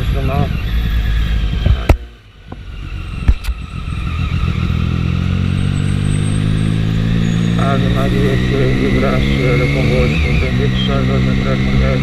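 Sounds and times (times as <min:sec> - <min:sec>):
motorcycle engine: 0:00.0 - 0:12.0.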